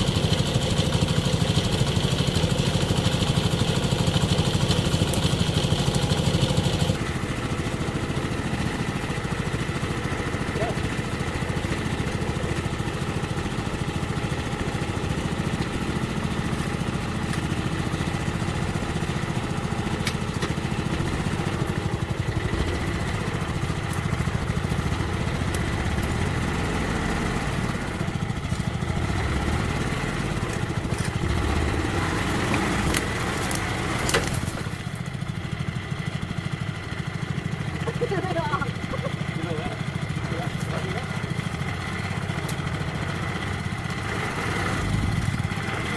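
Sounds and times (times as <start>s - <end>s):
small engine running: 0.0s - 45.9s.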